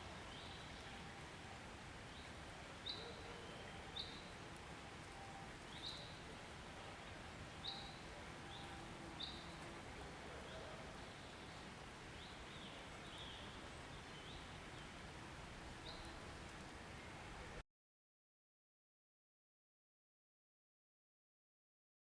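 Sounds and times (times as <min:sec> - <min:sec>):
steady background hiss: 0:00.0 - 0:17.6.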